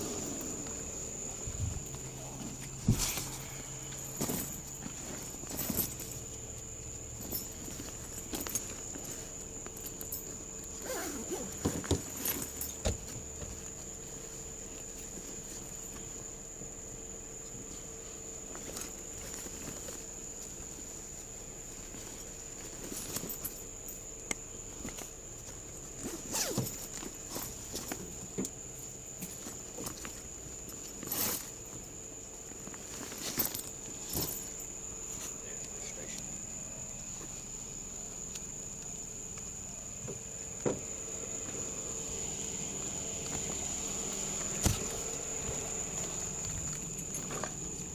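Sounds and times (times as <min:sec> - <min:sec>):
steady high whine: 0:00.0 - 0:10.8
high-pitched insect trill: 0:00.0 - 0:47.9.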